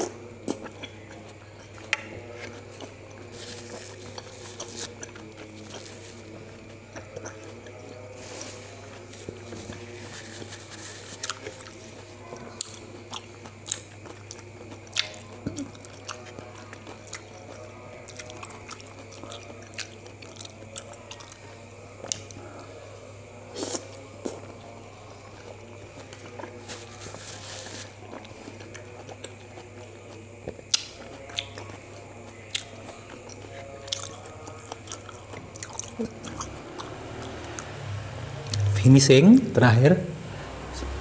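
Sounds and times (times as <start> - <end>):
wet chewing and biting: 0.0 - 8.0, 12.5 - 21.3, 28.0 - 37.8
low hum: 36.7 - 41.0.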